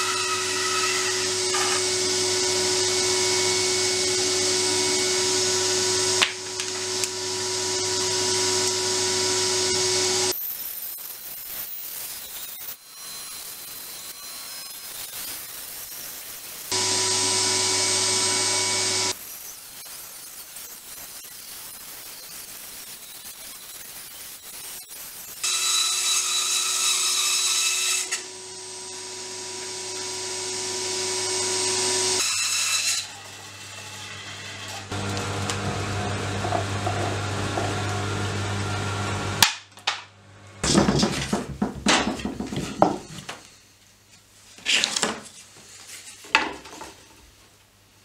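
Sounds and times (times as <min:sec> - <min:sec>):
bandsaw cutting wood: 0:00.0 - 0:10.4, 0:16.7 - 0:19.2, 0:25.4 - 0:39.5
wooden pieces clattering on workbench: 0:39.4 - 0:43.4.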